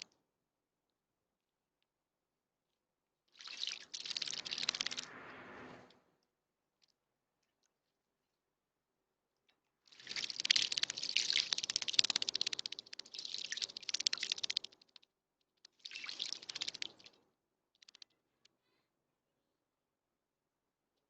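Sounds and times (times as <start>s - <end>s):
bird splashing in water: 3.4s - 5.1s, 9.9s - 14.6s, 15.9s - 17.2s.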